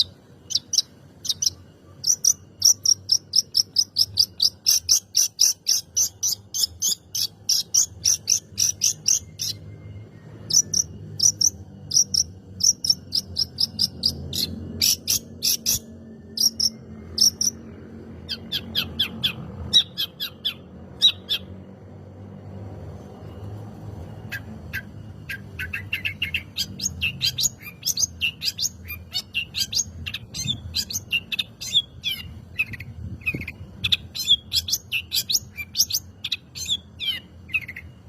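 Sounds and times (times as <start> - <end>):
bird chattering song: 0.0 - 21.6, 24.1 - 38.0.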